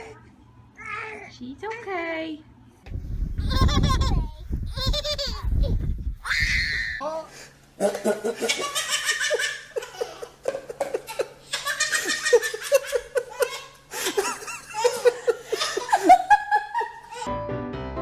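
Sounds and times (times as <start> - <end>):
high-pitched hearty laughter: 7.8 - 17.3
piano music: 17.3 - 18.0.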